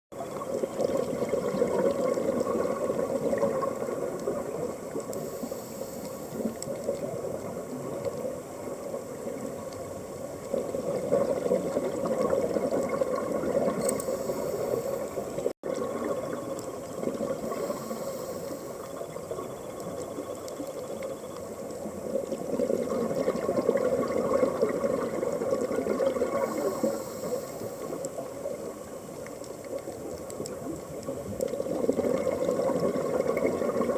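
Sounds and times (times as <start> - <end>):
bubbling exhalations underwater: 0.4 - 4.8, 10.5 - 13.9, 22.3 - 26.9, 31.2 - 33.9
regulator inhalation hiss: 5.2 - 6.6, 14.0 - 15.3, 17.5 - 18.9, 26.4 - 28.0.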